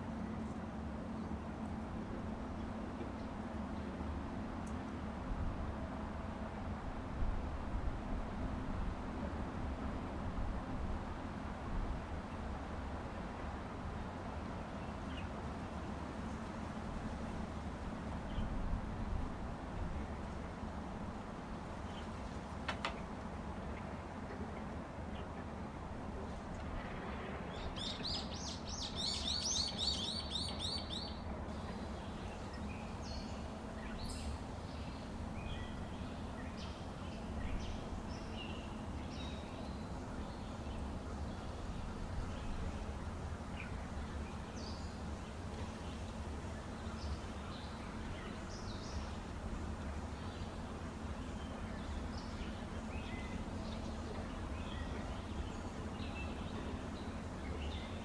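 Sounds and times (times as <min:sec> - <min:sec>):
low background noise: 0:00.0 - 0:58.0
songbirds chirping: 0:27.6 - 0:58.0.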